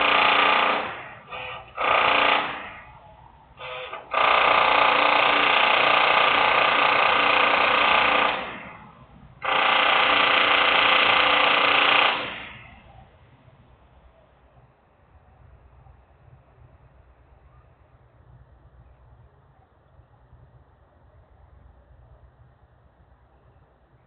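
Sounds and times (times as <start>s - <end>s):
loud industrial machine hum: 0.0s - 13.1s
low background hum: 0.0s - 24.0s.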